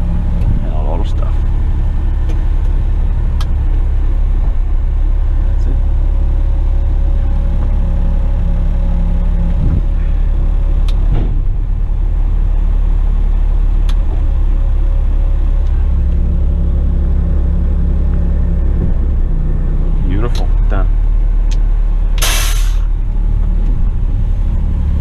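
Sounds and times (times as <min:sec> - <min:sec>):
diesel truck engine rumbling: 0:00.0 - 0:25.0.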